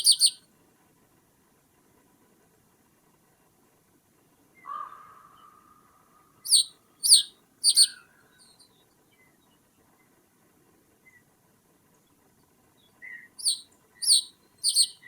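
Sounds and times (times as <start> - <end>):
sharp high falling bird calls: 0.0 - 0.4, 6.5 - 8.6, 13.4 - 15.0.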